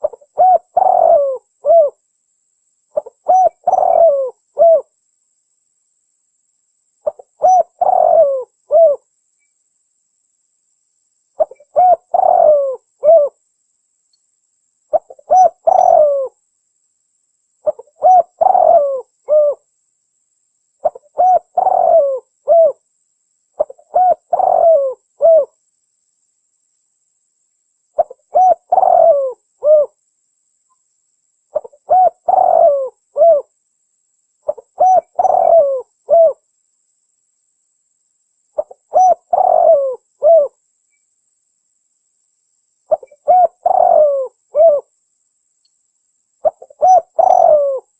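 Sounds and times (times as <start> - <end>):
dove cooing: 0.0 - 2.0, 3.0 - 4.9, 7.0 - 9.1, 11.4 - 13.4, 14.9 - 16.4, 17.6 - 19.7, 20.8 - 22.8, 23.6 - 25.6, 28.0 - 30.0, 31.5 - 33.5, 34.5 - 36.4, 38.6 - 40.6, 42.9 - 44.9, 46.4 - 47.9.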